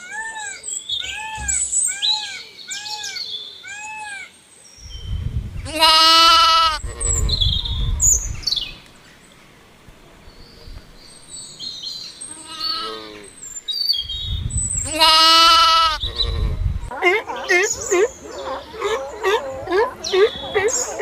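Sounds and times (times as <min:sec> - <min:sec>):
farm animal bleating: 0:05.6 - 0:07.4, 0:12.2 - 0:13.3, 0:14.8 - 0:17.2.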